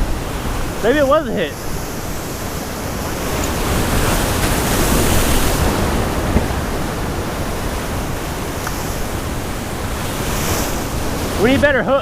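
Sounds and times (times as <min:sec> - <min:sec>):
wind on microphone: 0:00.0 - 0:11.8
surf washing against rocks: 0:00.0 - 0:12.0
short knock: 0:06.3 - 0:06.6.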